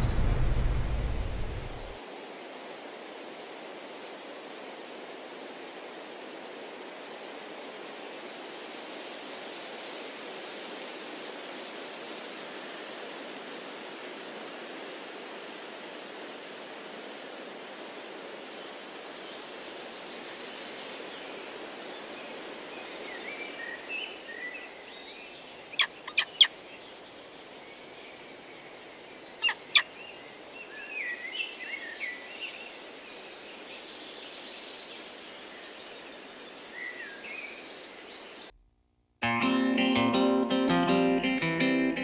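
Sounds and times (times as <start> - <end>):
birds chirping: 0.0 - 2.0, 25.5 - 26.7, 28.8 - 30.2
sharp loud clicks: 0.0 - 2.0
waterfall rushing: 0.0 - 2.0.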